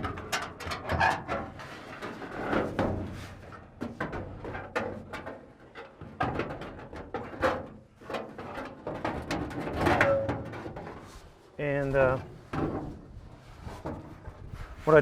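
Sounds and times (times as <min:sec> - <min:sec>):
aluminium parts knocking and scraping: 0:00.0 - 0:15.0.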